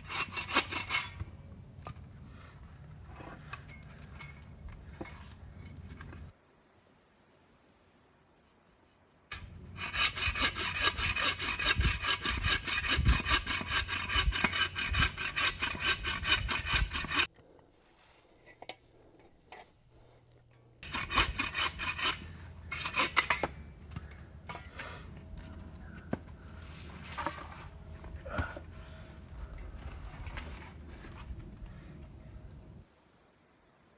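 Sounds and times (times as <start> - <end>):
hand saw cutting log: 0.0 - 1.4, 9.3 - 17.3, 20.8 - 24.9.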